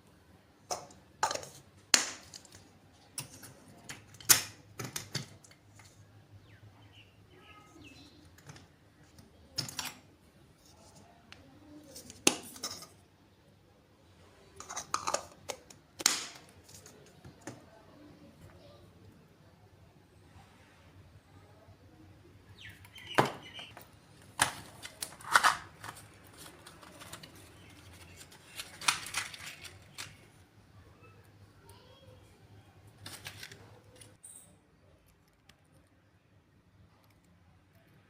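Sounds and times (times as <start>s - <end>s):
small hard objects clicking and tapping: 0.7s - 6.0s, 23.1s - 30.3s.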